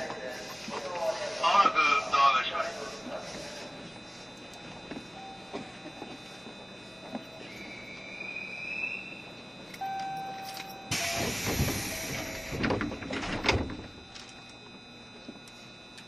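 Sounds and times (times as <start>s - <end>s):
short beep: 9.8s - 13.2s
train doors thudding: 10.0s - 14.4s
air hiss: 10.9s - 12.6s.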